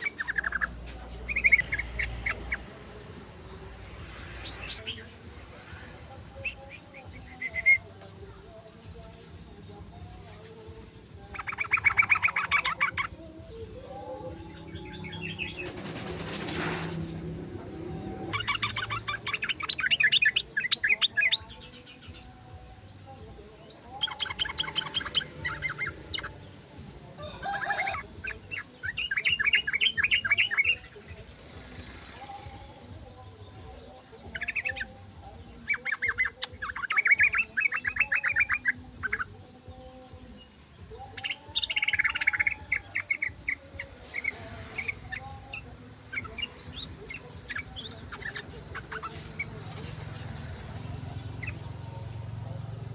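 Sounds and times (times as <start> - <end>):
bird chattering trills: 11.3 - 13.2, 41.0 - 52.2.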